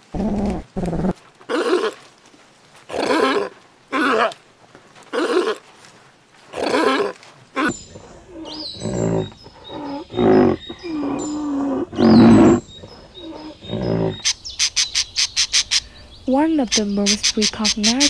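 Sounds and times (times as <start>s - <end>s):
large animal calling loudly: 6.6s - 14.3s
sea lion barking: 6.6s - 14.3s
small birds chirping: 7.6s - 18.0s.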